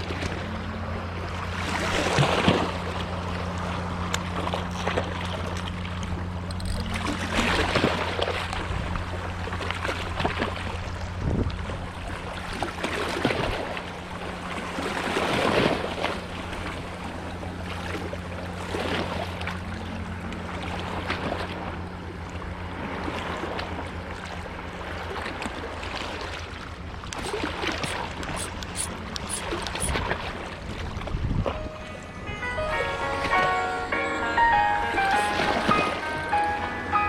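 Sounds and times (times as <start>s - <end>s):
water sloshing: 0.0s - 32.1s
low engine hum: 0.0s - 37.0s
wind noise: 11.1s - 11.8s, 30.8s - 31.8s.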